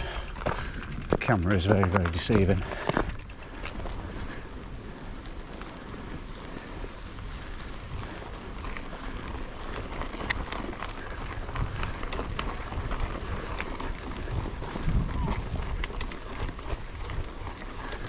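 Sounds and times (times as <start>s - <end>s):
wind buffeting microphone: 0.0s - 4.9s, 11.2s - 17.8s
bike clicks and rattles over stones: 0.0s - 18.0s.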